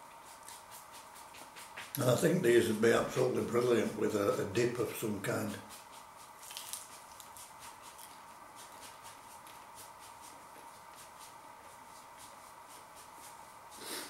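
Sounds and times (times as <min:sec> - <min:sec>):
faint hum: 0:00.0 - 0:14.0
pastry crunching while chewed: 0:06.4 - 0:09.6.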